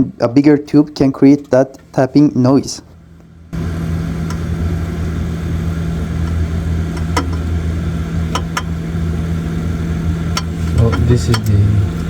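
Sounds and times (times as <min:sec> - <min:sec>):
refrigerator hum: 0:00.0 - 0:12.0
sharp refrigerator ticks: 0:08.3 - 0:08.8, 0:10.3 - 0:11.6.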